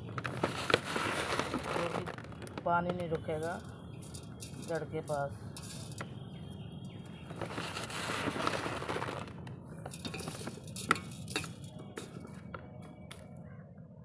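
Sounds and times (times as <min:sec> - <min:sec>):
stones clinking and knocking: 0:00.2 - 0:06.1, 0:07.3 - 0:12.5
gravel poured into a pot: 0:00.3 - 0:02.4, 0:03.4 - 0:04.8, 0:07.4 - 0:11.7.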